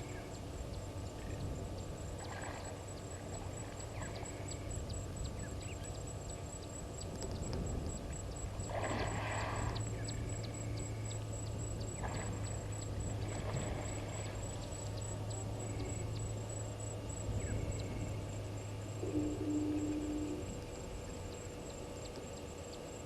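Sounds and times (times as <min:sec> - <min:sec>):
birds chirping: 0:00.0 - 0:23.0
low hum: 0:00.0 - 0:23.0
high-pitched insect buzz: 0:09.0 - 0:22.2.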